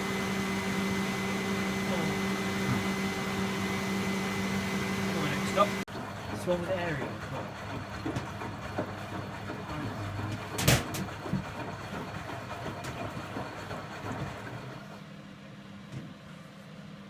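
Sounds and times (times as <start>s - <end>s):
washing machine humming: 0.0s - 17.0s
washing machine clunk: 10.2s - 14.4s.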